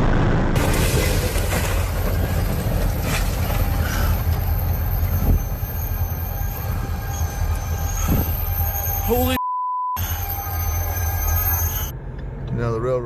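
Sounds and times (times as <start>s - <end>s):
train rumbling by: 0.1s - 9.4s.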